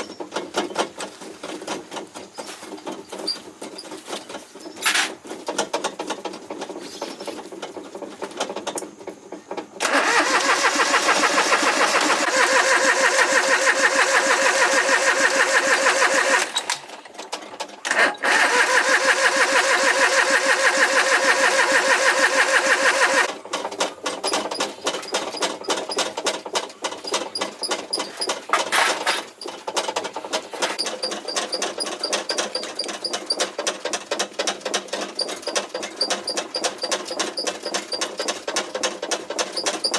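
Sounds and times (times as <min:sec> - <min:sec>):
rapid clicks and rattles: 0:00.0 - 0:39.9
motor running: 0:17.9 - 0:23.3.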